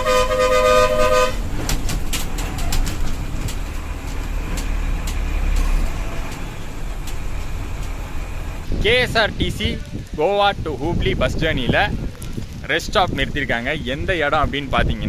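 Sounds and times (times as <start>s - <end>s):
vehicle horn blaring: 0.0s - 1.8s
bus engine rumble: 0.0s - 14.6s
sharp clicks or rattles: 1.4s - 8.1s.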